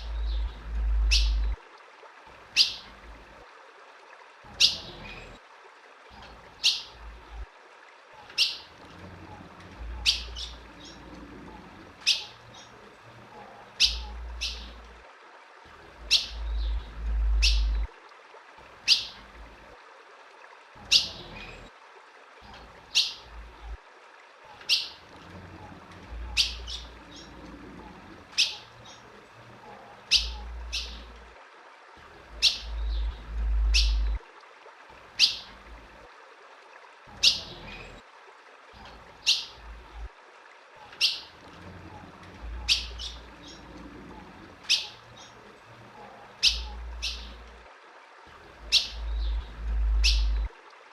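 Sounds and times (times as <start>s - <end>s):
bird chip calls: 0.0s - 1.6s, 12.0s - 12.7s, 13.8s - 14.8s, 16.0s - 17.9s, 18.8s - 19.2s, 28.4s - 29.0s, 30.0s - 31.1s, 32.4s - 34.2s, 35.2s - 35.5s, 40.9s - 41.3s, 42.6s - 43.6s, 44.7s - 45.4s, 46.4s - 47.4s, 48.7s - 50.5s
low rumbles: 0.0s - 1.6s, 15.9s - 17.9s, 32.3s - 34.2s, 48.6s - 50.5s.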